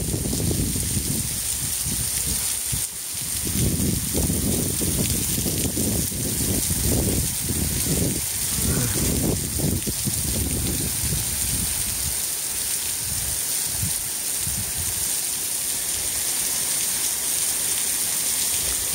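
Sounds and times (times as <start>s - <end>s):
heavy rain on pavement: 0.0s - 18.9s
low rumbling: 6.8s - 11.8s.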